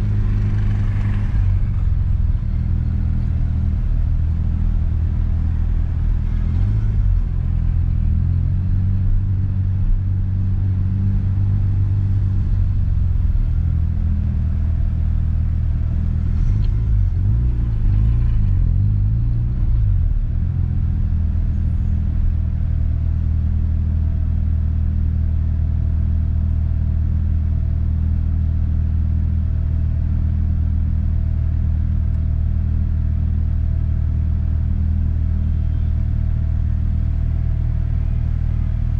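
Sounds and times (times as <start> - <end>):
rotary engine idling: 0.0 - 6.5.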